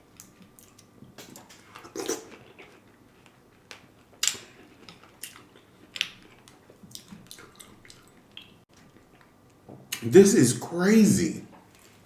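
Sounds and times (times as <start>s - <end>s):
chewing and mouth smacks: 0.1s - 10.0s.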